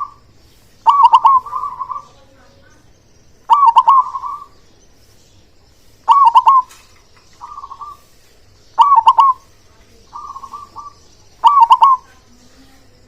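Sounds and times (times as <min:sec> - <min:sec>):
dove cooing: 0:00.0 - 0:02.7, 0:03.4 - 0:04.6, 0:06.0 - 0:08.2, 0:08.8 - 0:13.0.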